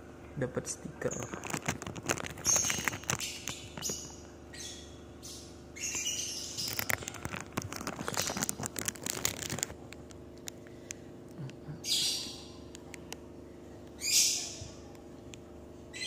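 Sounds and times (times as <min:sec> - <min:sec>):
small birds chirping: 0:01.0 - 0:09.7, 0:10.7 - 0:15.1
rustling: 0:01.1 - 0:04.0, 0:06.6 - 0:10.6.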